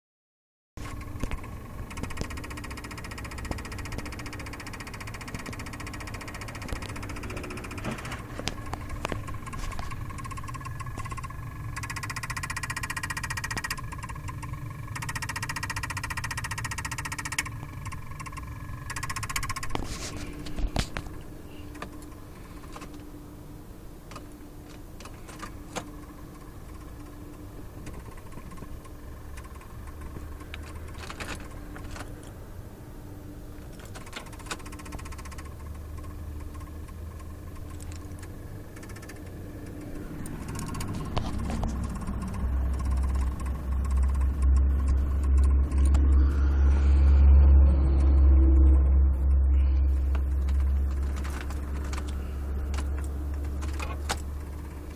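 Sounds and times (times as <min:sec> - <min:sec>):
car starter clicks: 0:00.8 - 0:23.1, 0:24.1 - 0:32.4, 0:33.6 - 0:46.0, 0:49.9 - 0:54.9
faint steady hum: 0:00.8 - 0:54.9
low rumble: 0:05.1 - 0:11.9, 0:37.0 - 0:54.9.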